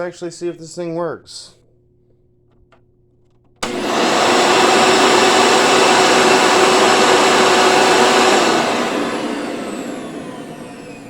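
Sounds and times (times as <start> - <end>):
vacuum cleaner motor whine: 3.6 - 11.0.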